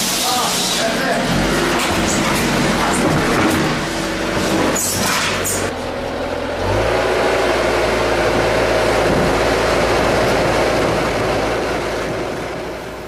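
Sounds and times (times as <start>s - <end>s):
factory machinery humming: 0.0s - 13.0s.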